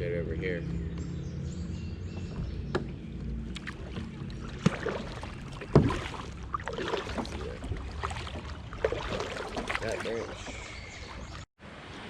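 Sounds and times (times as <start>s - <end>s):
water splashing around paddle: 3.4s - 11.5s
sharp knocks on kayak: 3.5s - 10.6s.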